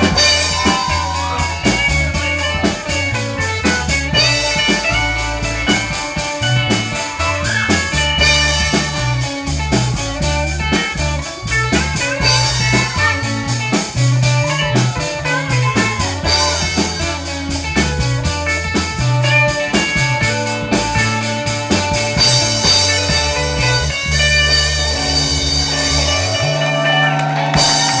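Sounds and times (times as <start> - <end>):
bass: 0.0 - 28.0
drum kit beat: 0.0 - 28.0
guitar: 0.0 - 28.0.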